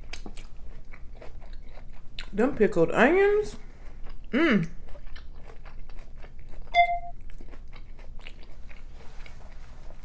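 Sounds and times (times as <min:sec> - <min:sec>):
close-up chewing with crunches: 0:00.0 - 0:02.4, 0:03.6 - 0:10.0
short electronic beep: 0:06.7 - 0:07.2.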